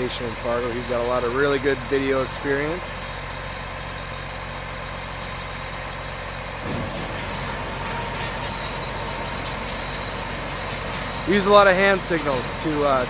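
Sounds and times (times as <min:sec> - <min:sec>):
farm engine running: 0:00.0 - 0:13.0
steady whine: 0:00.0 - 0:13.0
light clatter: 0:06.6 - 0:12.6.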